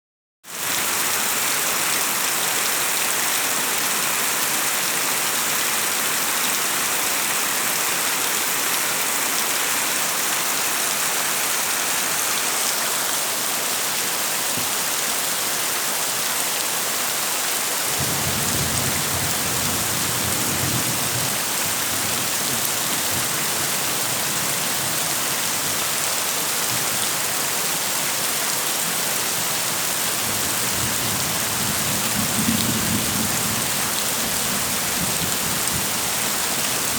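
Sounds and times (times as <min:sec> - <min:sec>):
heavy rain falling: 0:00.5 - 0:36.9.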